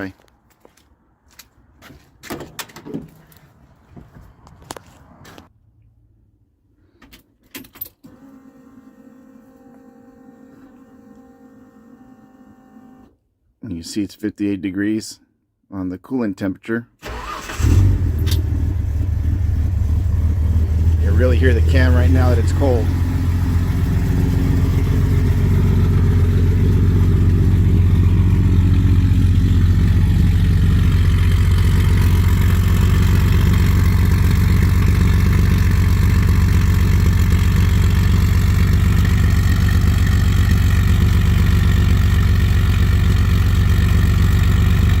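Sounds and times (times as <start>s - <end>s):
cold engine idling with valvetrain noise: 17.0s - 45.0s.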